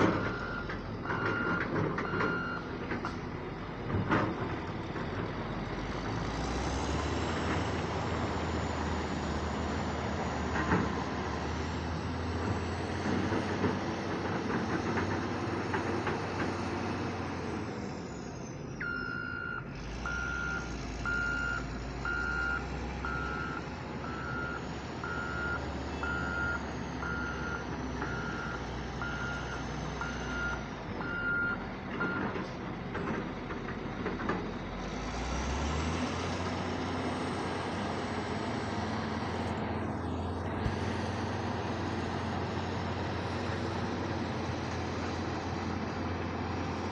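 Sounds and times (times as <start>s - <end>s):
diesel machinery running: 0.0s - 46.9s
reversing alarm beeping: 0.2s - 2.7s, 18.8s - 32.3s.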